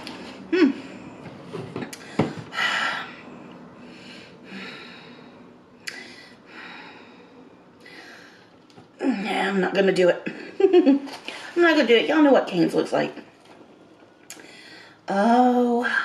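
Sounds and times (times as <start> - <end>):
close-up breathing: 0.1 - 8.6, 14.3 - 15.0.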